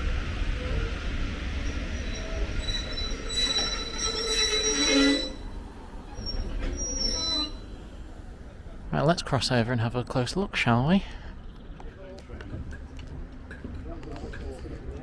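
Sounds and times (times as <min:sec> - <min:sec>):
train wheels and brakes squealing: 0:00.6 - 0:08.0.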